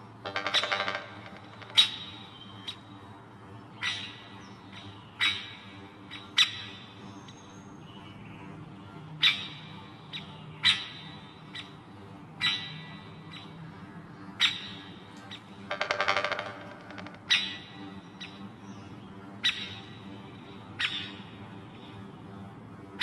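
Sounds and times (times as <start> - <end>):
birds giving sharp calls: 0.3 - 2.2, 15.7 - 17.6.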